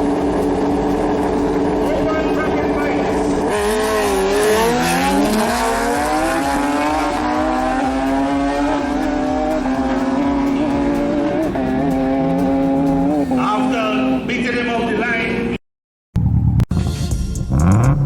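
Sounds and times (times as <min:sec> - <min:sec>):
motorcycle engine revving high: 0:00.0 - 0:14.3.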